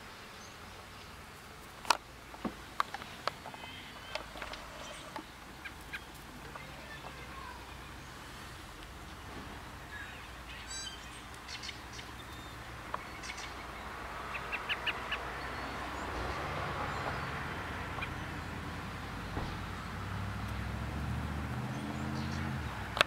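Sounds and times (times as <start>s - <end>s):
small bird chirping: 3.5s - 8.1s, 9.7s - 16.1s.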